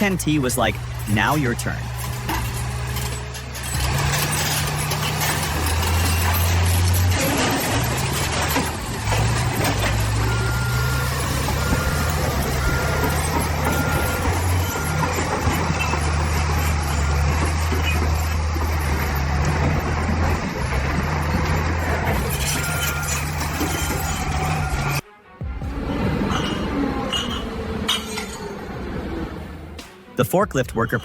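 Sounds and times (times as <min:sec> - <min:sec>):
heavy diesel machinery running: 0:00.0 - 0:30.0
backup alarm beeping: 0:10.1 - 0:15.4.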